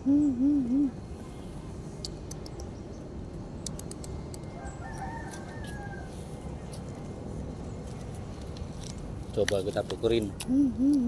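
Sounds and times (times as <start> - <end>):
distant rooster crowing: 4.5 - 6.4.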